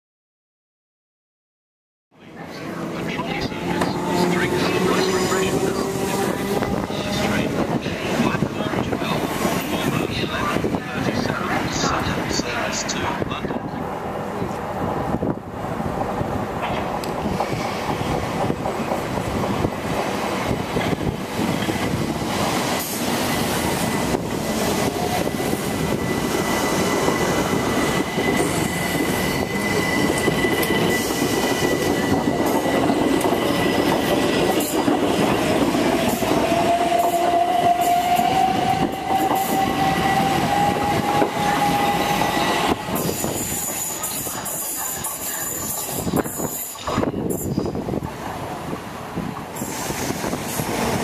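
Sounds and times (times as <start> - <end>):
train wheels rumbling on rails: 2.2 - 51.0
high wheel squeal: 24.8 - 34.0, 36.1 - 47.7.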